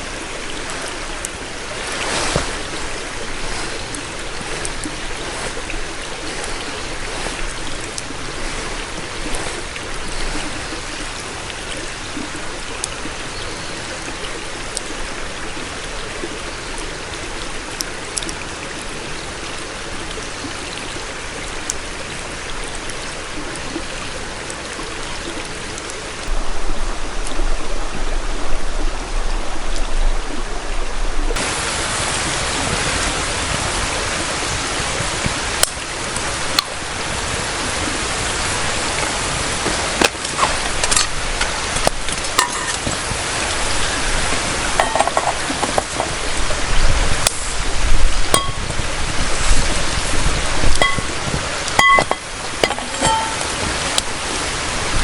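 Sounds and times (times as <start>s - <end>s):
steady hiss: 0.0s - 55.0s
metal cookware clinking: 42.4s - 42.8s, 44.8s - 45.9s, 48.4s - 48.6s, 50.8s - 51.1s, 51.8s - 53.5s.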